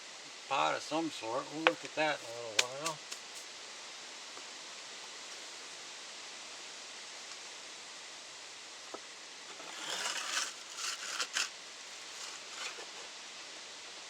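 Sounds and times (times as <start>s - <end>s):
steady hiss: 0.0s - 14.0s
ash scraping and rustling: 9.5s - 13.1s.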